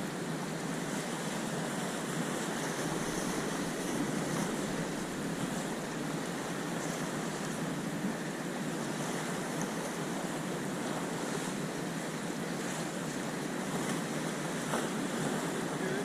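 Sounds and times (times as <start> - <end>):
sea waves washing: 0.0 - 16.0
wind buffeting microphone: 2.6 - 8.3.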